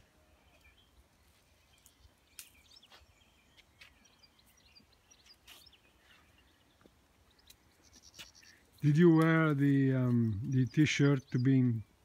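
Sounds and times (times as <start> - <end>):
faint bird chirps: 0.1 - 9.1.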